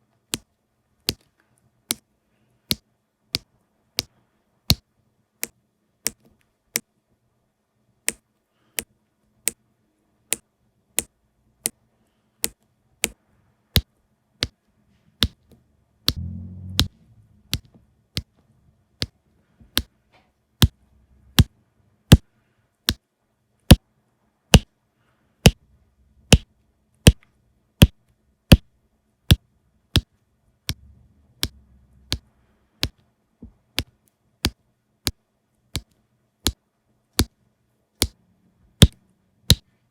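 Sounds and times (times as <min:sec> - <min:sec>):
low handling rumble: 0:16.2 - 0:18.0, 0:30.7 - 0:32.4.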